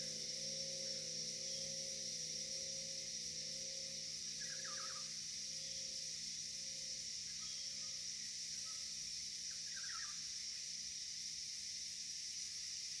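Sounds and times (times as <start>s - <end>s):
steady high-pitched hiss: 0.0s - 13.0s
faint bird chirps: 4.4s - 5.1s.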